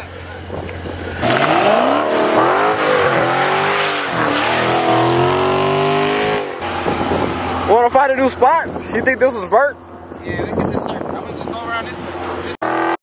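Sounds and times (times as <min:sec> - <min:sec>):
car engine revving hard: 0:01.2 - 0:07.6, 0:12.6 - 0:13.0.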